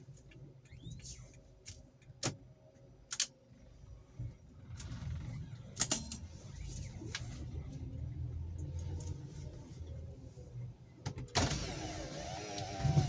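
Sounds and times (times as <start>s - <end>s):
car engine rumbling: 2.9s - 13.0s.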